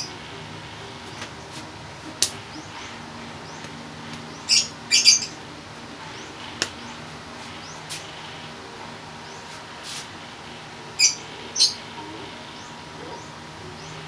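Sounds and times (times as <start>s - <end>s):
bird squawks: 4.3s - 5.4s, 10.9s - 14.0s.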